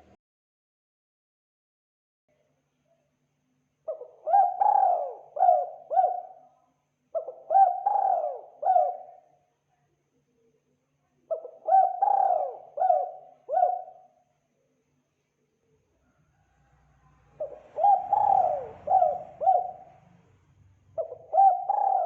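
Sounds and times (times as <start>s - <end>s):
dove cooing: 3.9s - 6.5s, 7.2s - 9.3s, 11.3s - 14.2s, 17.3s - 20.1s, 21.0s - 22.0s.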